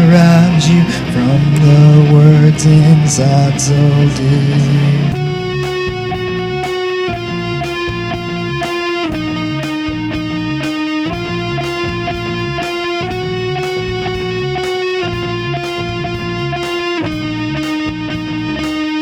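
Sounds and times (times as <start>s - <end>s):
electric guitar riff: 0.0s - 19.0s
drum hits: 5.1s - 19.0s.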